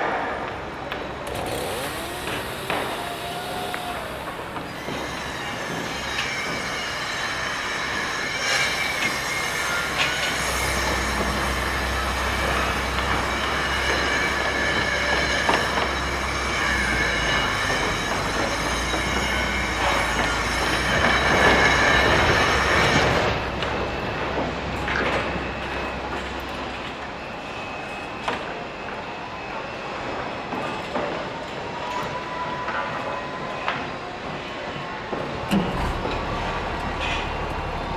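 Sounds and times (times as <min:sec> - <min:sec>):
heavy machine rumbling: 0:00.5 - 0:06.6, 0:35.4 - 0:37.9
high-pitched metallic squeal: 0:01.3 - 0:37.9.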